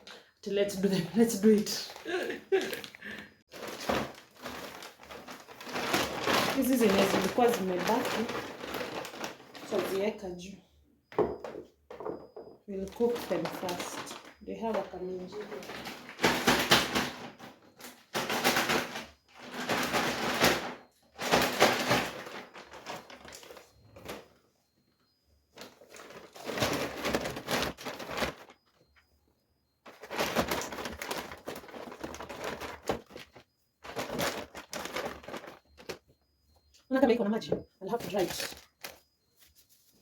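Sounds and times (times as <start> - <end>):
plastic bags rustling: 0.0 - 10.4, 11.2 - 24.5, 25.5 - 29.1, 29.8 - 36.2, 37.1 - 40.0.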